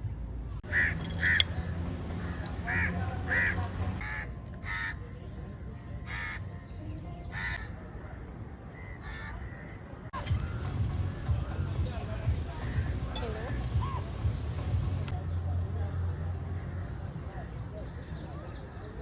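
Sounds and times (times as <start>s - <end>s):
crows cawing: 0.6s - 1.6s, 2.2s - 5.0s, 6.1s - 6.4s, 7.3s - 7.7s, 8.8s - 9.8s.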